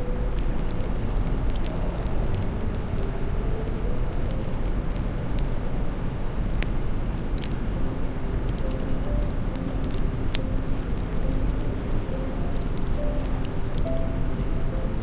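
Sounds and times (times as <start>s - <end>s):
wood fire rumbling: 0.0s - 15.0s
fire crackles and pops: 0.1s - 15.0s.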